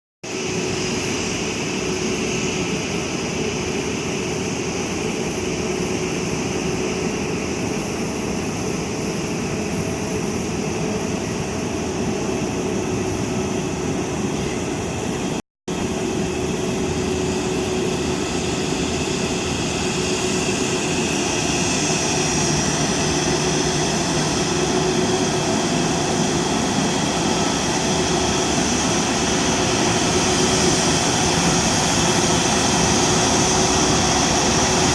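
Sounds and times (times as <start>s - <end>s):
jet engines running: 0.3s - 34.9s.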